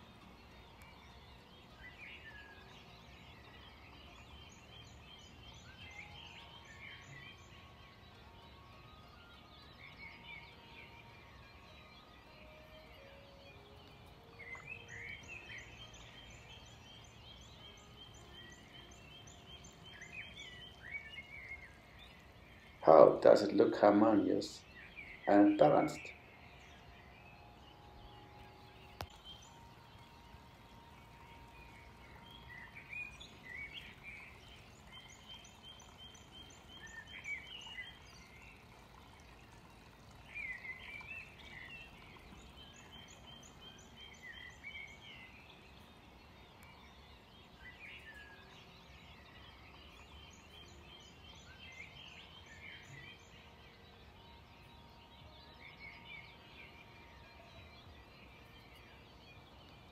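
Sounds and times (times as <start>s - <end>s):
faint outdoor background noise: 0.0s - 59.9s
songbird singing: 0.0s - 59.9s
click: 29.0s - 29.2s.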